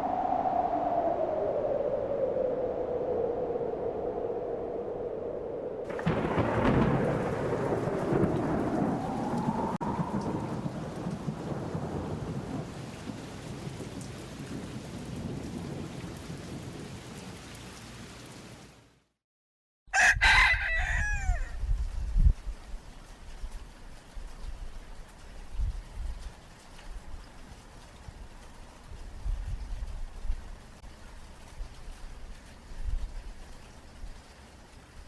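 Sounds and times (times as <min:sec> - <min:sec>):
thunder rumbling: 0:00.0 - 0:17.2
rain: 0:00.0 - 0:19.2, 0:19.9 - 0:35.0
rooster crowing: 0:19.9 - 0:21.6.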